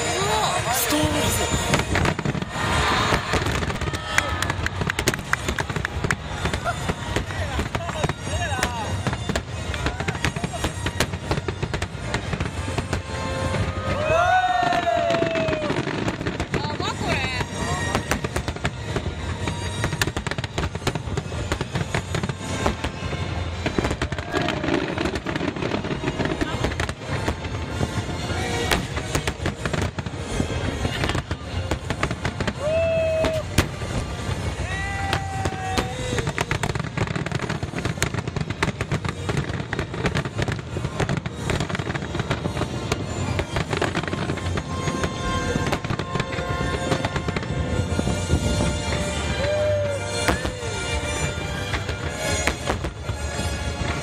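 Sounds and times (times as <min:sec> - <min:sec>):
music playing: 0:00.0 - 0:04.9, 0:17.1 - 0:54.0
fireworks cracking and banging: 0:00.0 - 0:54.0.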